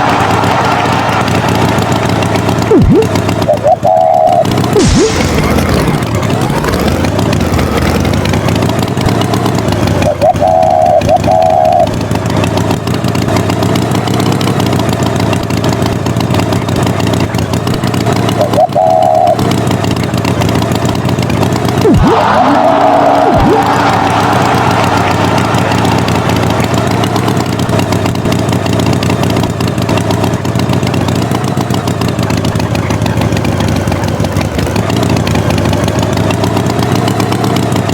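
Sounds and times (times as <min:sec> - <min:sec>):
tractor engine running: 0:00.0 - 0:37.9
short warbling tones: 0:01.3 - 0:09.2, 0:09.8 - 0:12.0, 0:18.2 - 0:19.5, 0:21.7 - 0:29.5.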